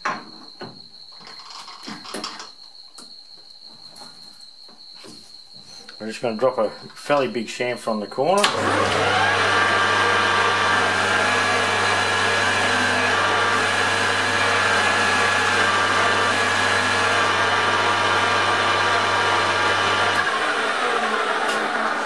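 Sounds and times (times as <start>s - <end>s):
lathe whine: 8.4s - 22.0s
metal lathe motor hum: 8.5s - 22.0s.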